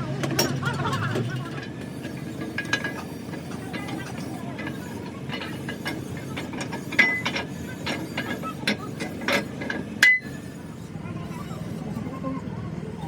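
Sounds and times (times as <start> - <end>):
metal tools clanking: 0.2 - 4.0, 4.6 - 10.4.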